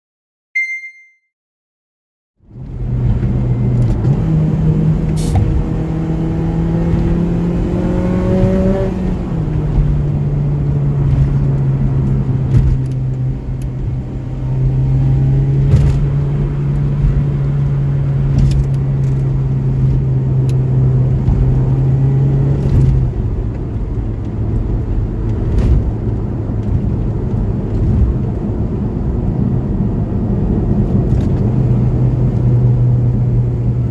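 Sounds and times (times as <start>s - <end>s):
short high beep: 0.5s - 1.3s
car engine running: 2.6s - 33.9s.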